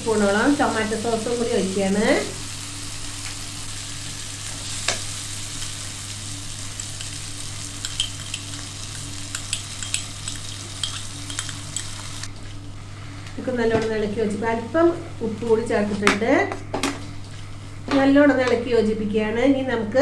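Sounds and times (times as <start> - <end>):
food sizzling in a frying pan: 0.0 - 12.3
steady low hum: 0.0 - 20.0
spatula tapping and scraping pan: 9.3 - 12.0.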